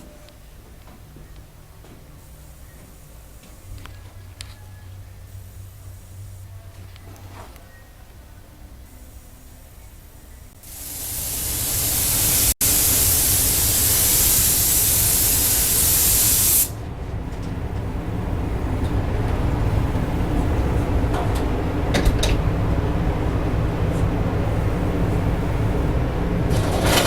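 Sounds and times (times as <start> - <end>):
compressed air hissing: 10.6 - 16.8.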